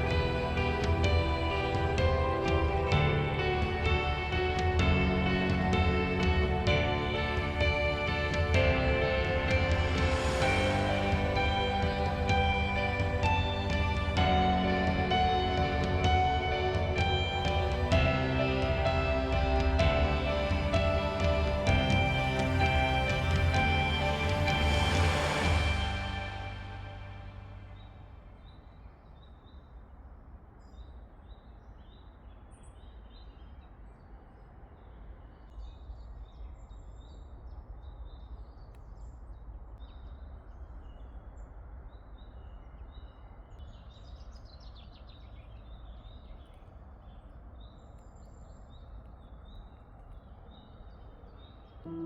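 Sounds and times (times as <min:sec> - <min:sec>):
low rumble and hiss: 0:00.0 - 0:32.9.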